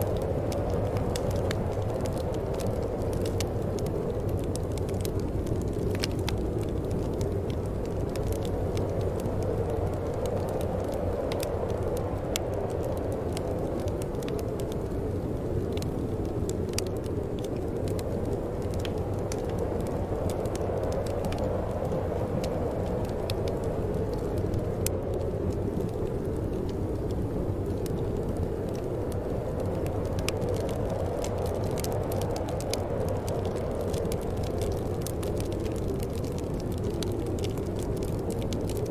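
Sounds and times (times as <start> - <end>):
fire crackling and popping: 0.0 - 38.9
low rush of burning: 0.0 - 38.9.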